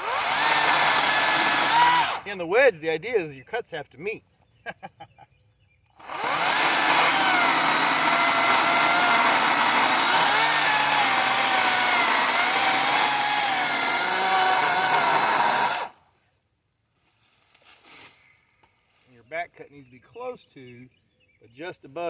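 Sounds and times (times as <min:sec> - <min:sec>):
electric chainsaw cutting wood: 0:00.0 - 0:02.3, 0:06.0 - 0:16.0.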